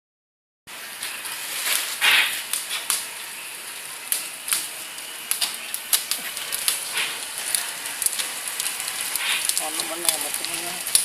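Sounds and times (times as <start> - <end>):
light hiss: 0.9 - 11.0
plastic sack crackling: 5.4 - 11.0.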